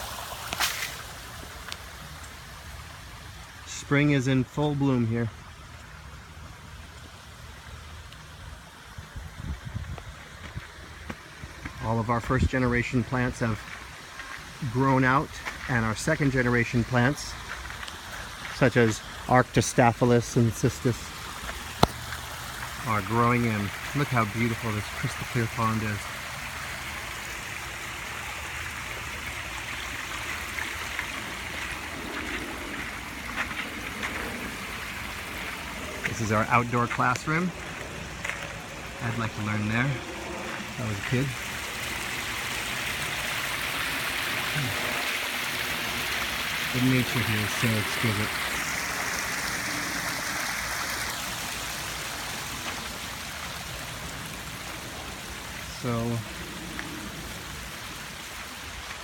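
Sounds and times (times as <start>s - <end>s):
faint small splashes: 0.0s - 2.5s
water rushing over rocks: 0.0s - 59.0s.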